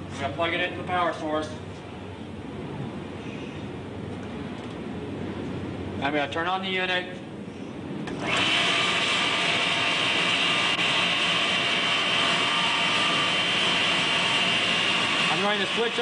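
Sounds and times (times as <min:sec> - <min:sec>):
motor-generator whining: 0:08.0 - 0:16.0.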